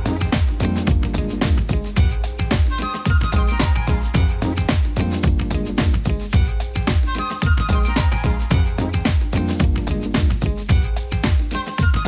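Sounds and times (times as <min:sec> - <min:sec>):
heavy bass line: 0:00.0 - 0:02.4, 0:03.4 - 0:06.8
steady drum beat: 0:00.0 - 0:12.0.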